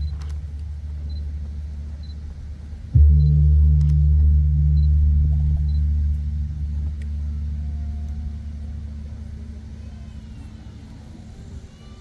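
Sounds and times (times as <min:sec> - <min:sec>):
deep percussion resonance: 0:02.8 - 0:10.9.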